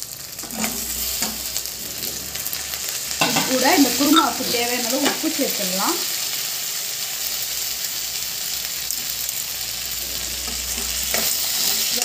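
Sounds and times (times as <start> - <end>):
vegetables sizzling in hot oil: 0.0 - 12.0
steel spatula stirring: 0.4 - 5.4, 10.0 - 12.0.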